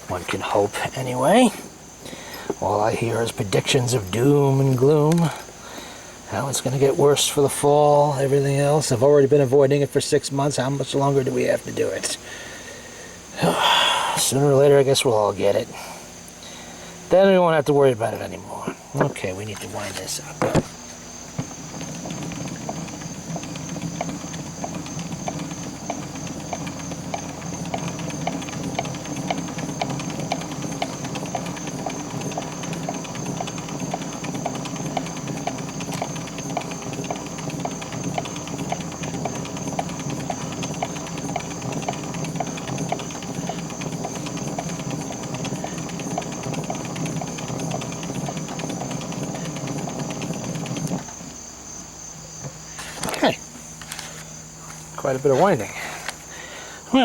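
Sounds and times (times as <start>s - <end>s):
gear whirr: 13.3s - 57.0s
ratchet clicks: 21.4s - 51.4s.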